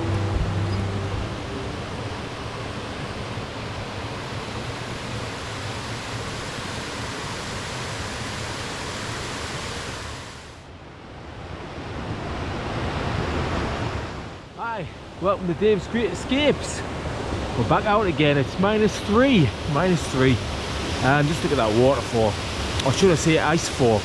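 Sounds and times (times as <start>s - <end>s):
acoustic guitar music: 0.0s - 2.0s
waterfall rushing: 0.0s - 10.6s, 12.6s - 24.0s.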